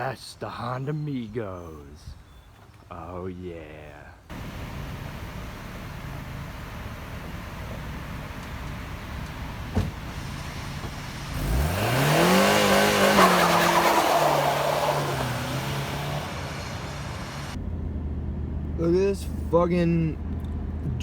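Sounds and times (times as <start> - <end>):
car engine revving: 4.3 - 19.0.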